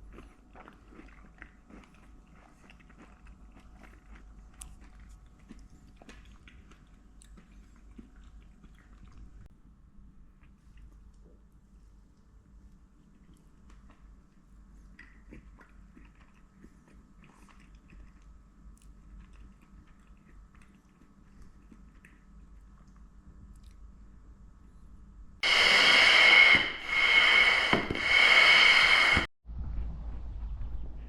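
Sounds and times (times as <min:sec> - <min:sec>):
loud whistling hiss: 0:25.4 - 0:29.3.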